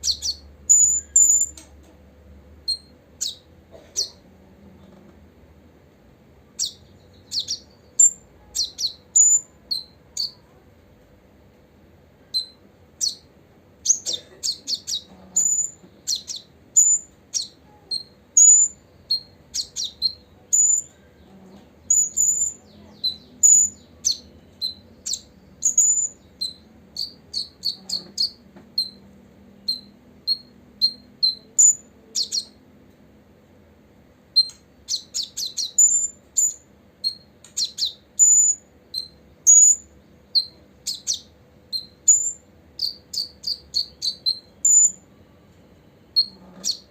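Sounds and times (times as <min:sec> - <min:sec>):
sunbird chirping: 0:00.0 - 0:01.6, 0:02.6 - 0:04.2, 0:06.5 - 0:10.5, 0:12.2 - 0:32.6, 0:34.3 - 0:46.9.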